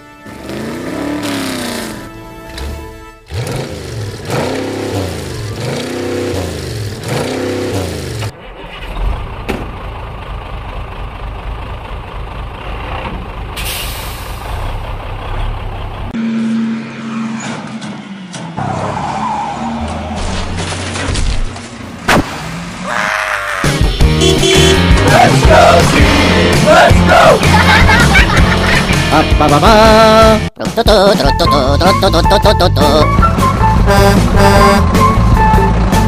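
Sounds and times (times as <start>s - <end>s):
rising and falling wail: 22.8s - 23.9s, 25.0s - 27.6s
cartoon heavy engine drone: 22.8s - 36.0s.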